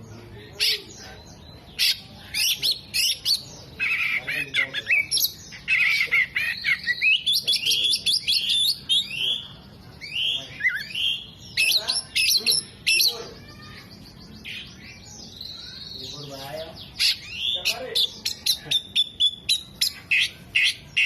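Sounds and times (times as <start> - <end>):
bird singing chirps and whistles: 4.8 - 13.1, 17.0 - 21.0.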